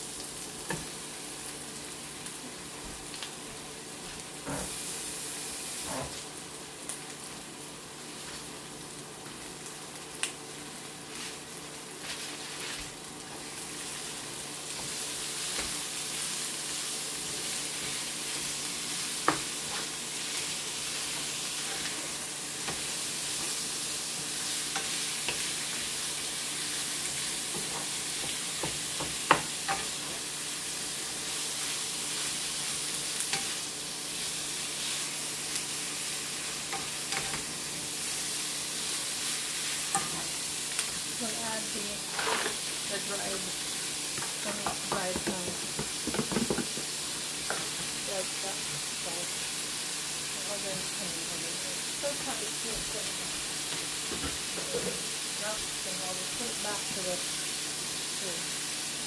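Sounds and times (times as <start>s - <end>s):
meat sizzling in a pan: 0.0s - 59.0s
spatula knocking against pan: 44.6s - 46.9s.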